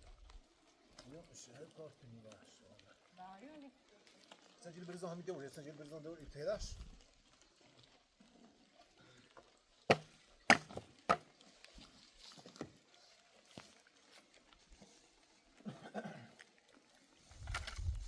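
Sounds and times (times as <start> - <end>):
sharp knocks: 9.9 - 11.2.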